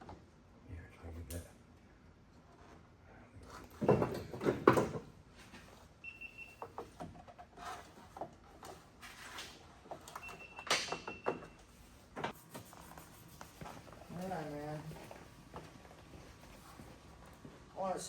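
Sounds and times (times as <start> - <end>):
car parts knocking and rattling: 3.7 - 5.2.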